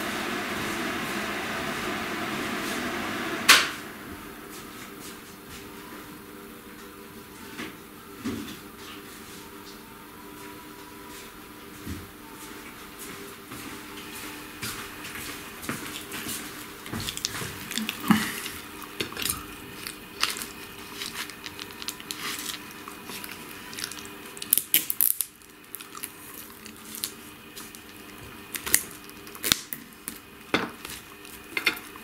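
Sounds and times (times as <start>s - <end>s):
person chewing food: 15.7s - 32.0s.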